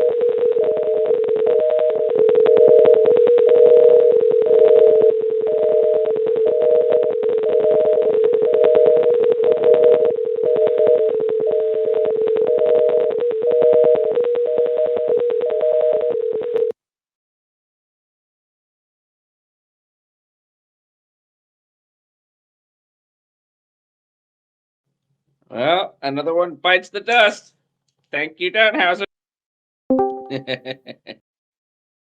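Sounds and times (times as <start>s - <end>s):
crackling distortion: 0.0s - 16.7s
steady hum-like telephone tone: 0.0s - 16.8s
higher beep: 29.9s - 30.6s.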